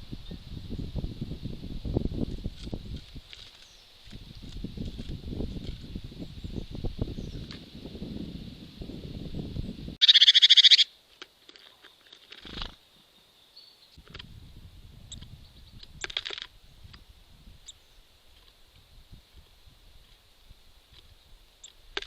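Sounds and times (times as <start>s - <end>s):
bird harsh buzzy rattling call: 10.0s - 10.9s.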